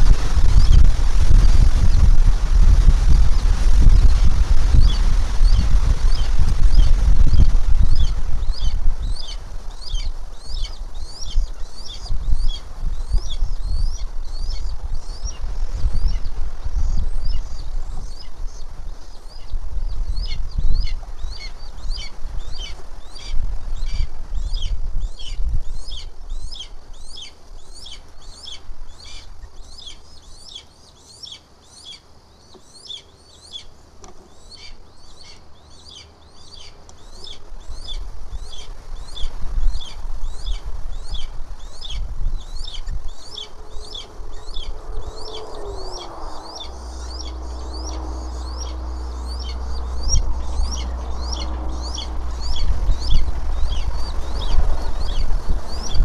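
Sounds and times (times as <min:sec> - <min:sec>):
low rumble: 0:00.0 - 0:26.6, 0:37.5 - 0:56.0
bird chirping high notes: 0:40.4 - 0:56.0.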